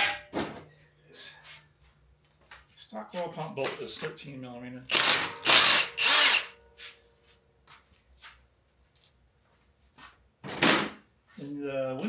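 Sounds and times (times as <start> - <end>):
power tool driving socket: 4.9 - 6.6.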